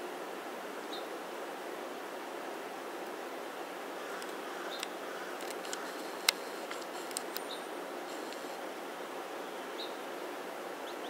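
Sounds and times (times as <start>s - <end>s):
outdoor background hiss: 0.0s - 11.0s
sharp clicks: 4.2s - 7.5s.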